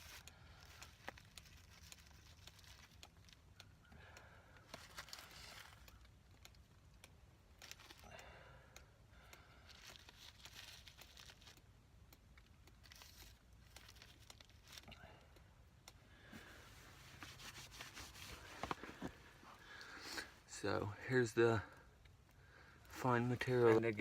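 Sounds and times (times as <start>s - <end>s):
dry leaf rustling and crinkling: 0.0s - 3.4s, 4.7s - 5.9s, 7.6s - 8.1s, 9.7s - 11.6s, 12.8s - 15.0s
small clicks: 0.0s - 16.6s.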